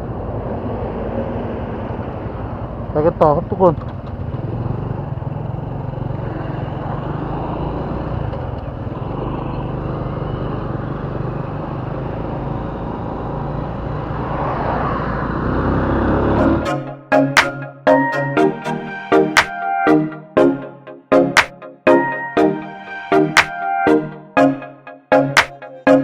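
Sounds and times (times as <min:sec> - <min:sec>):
road noise: 0:00.0 - 0:16.7
music: 0:16.4 - 0:26.0.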